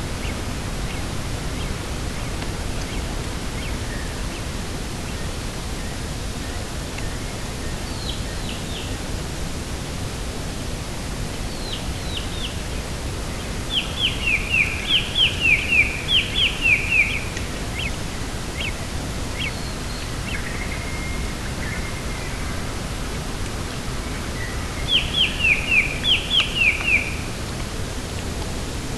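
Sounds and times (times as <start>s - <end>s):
steady rushing outdoor noise: 0.0s - 28.9s
small bird chirping: 24.0s - 27.2s.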